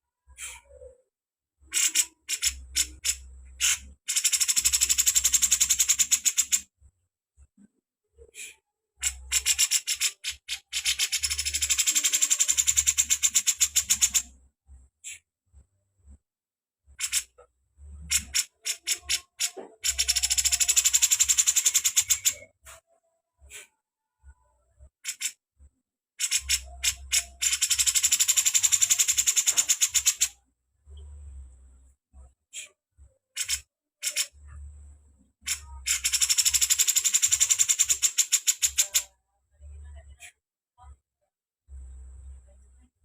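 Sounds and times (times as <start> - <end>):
songbird calling and trilling: 1.7 - 6.6, 9.0 - 14.2, 18.1 - 22.8, 35.4 - 39.1.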